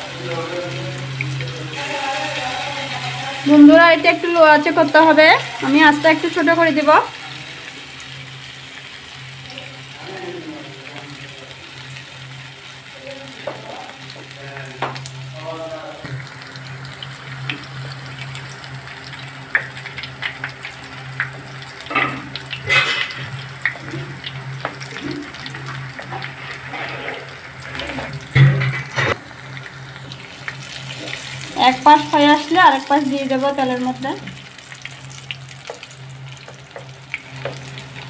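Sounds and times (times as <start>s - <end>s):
fritters sizzling in oil: 0.0s - 38.0s
wooden spatula scraping a pan: 26.0s - 29.2s.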